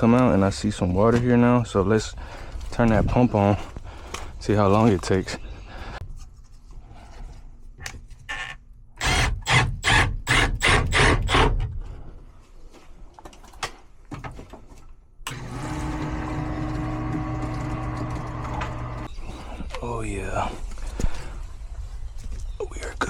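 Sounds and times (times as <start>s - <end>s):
pump motor humming: 15.3s - 19.1s.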